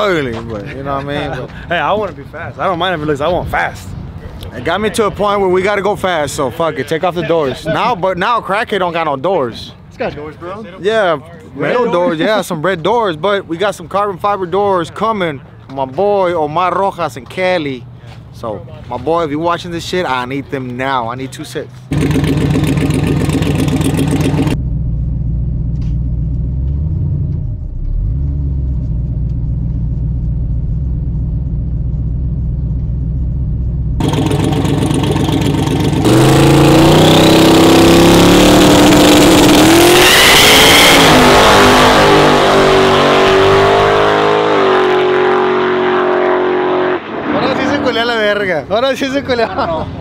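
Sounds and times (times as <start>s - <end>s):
truck engine revving: 21.9s - 48.4s.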